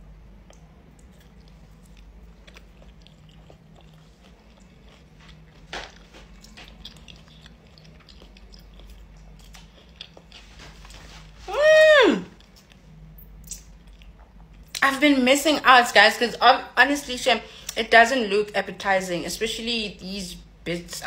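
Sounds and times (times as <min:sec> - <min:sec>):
low steady hum: 0:00.0 - 0:21.0
quiet chewing: 0:00.4 - 0:11.4, 0:12.4 - 0:14.8.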